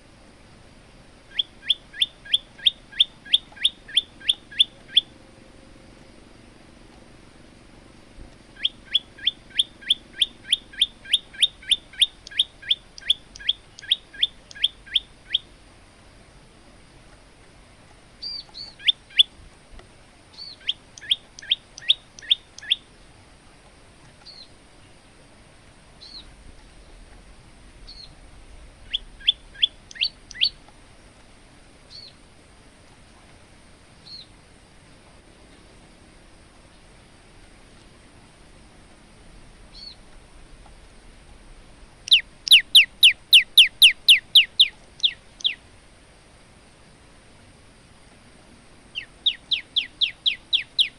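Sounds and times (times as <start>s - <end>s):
bird singing sharp notes: 1.3s - 5.1s, 8.6s - 15.5s, 20.3s - 22.8s, 28.9s - 30.6s, 39.7s - 40.0s, 42.1s - 45.6s, 49.0s - 50.9s
bird high chips: 42.1s - 45.6s.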